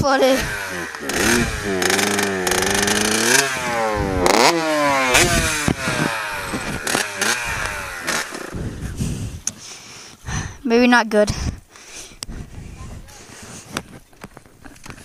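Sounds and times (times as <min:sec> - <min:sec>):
small motorbike engine revving: 0:00.0 - 0:09.4.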